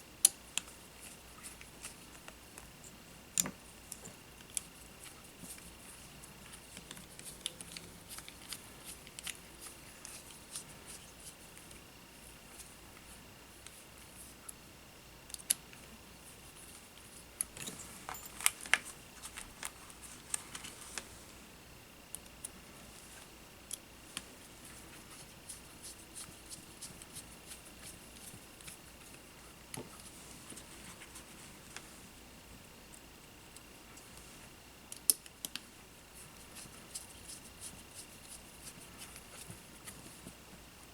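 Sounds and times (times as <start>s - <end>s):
faint high whine: 2.8s - 35.0s.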